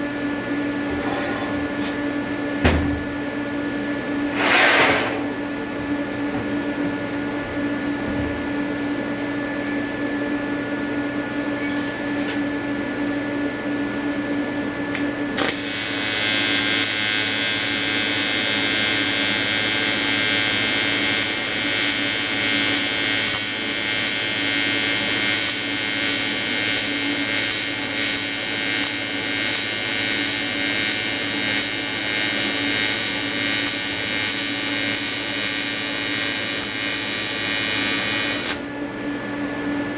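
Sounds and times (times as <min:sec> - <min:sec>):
welding arc buzzing: 0:14.9 - 0:38.7.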